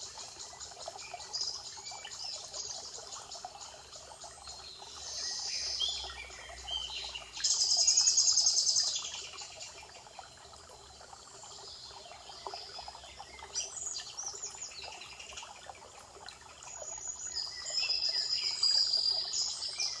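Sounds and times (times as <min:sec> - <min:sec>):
songbird trill: 0:16.8 - 0:20.0.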